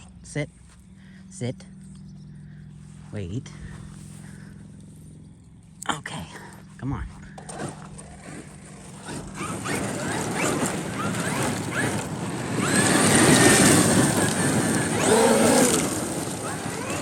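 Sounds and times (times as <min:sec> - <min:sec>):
tires churning over gravel: 0:06.4 - 0:17.0
toy truck electric motor whining: 0:07.4 - 0:17.0.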